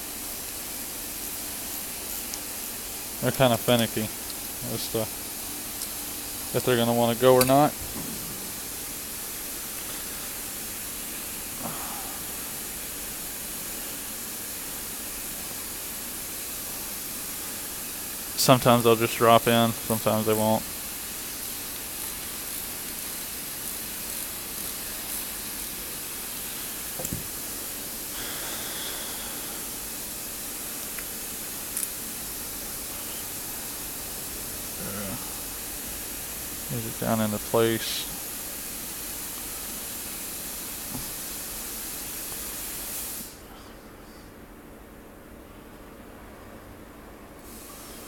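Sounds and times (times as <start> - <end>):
background hiss: 0.0 - 48.0.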